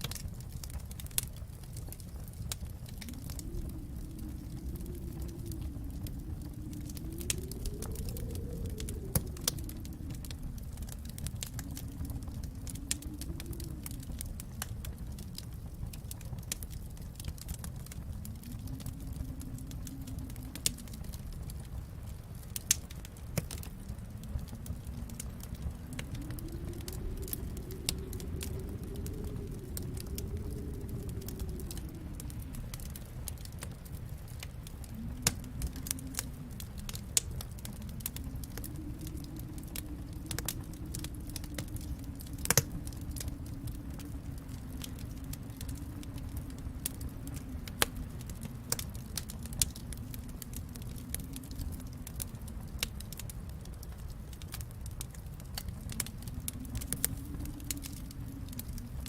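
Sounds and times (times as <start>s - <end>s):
low rumble: 0.0s - 59.0s
wood fire crackling: 0.0s - 59.0s.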